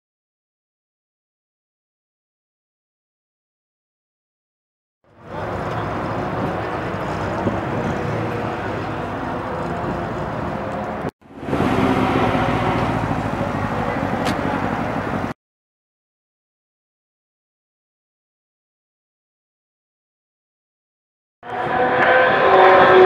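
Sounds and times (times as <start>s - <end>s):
car engines idling: 5.1s - 15.4s
people talking: 5.2s - 10.4s, 12.8s - 15.3s.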